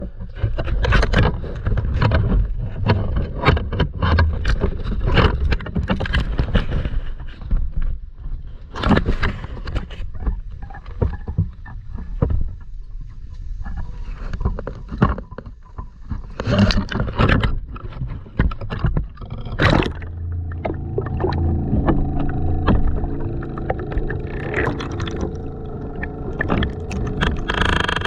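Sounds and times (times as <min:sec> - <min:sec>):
boat engine low rumble: 0:18.8 - 0:28.0.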